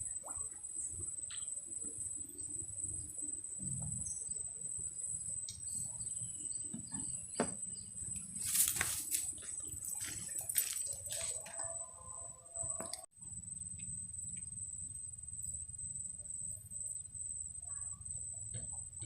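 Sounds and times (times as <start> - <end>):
insects chirring: 0.0 - 19.0
rustling: 8.3 - 11.6.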